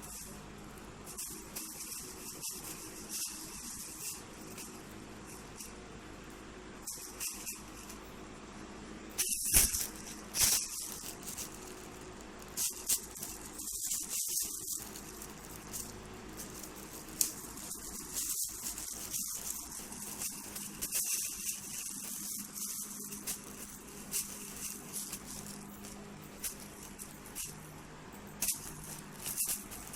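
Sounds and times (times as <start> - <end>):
crinkly plastic rustling: 0.0 - 5.8, 9.2 - 29.9
loud plastic crackles: 9.2 - 29.9.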